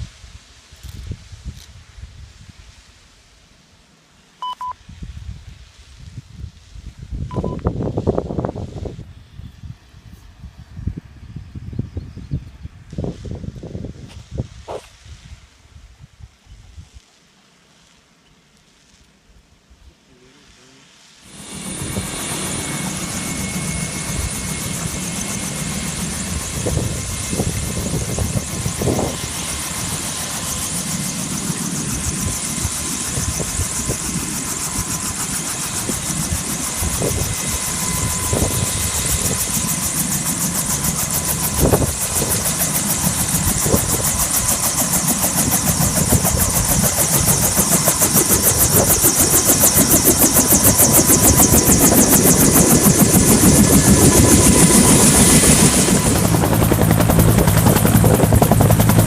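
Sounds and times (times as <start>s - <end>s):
fast even pulsing: 21.3s - 59.0s.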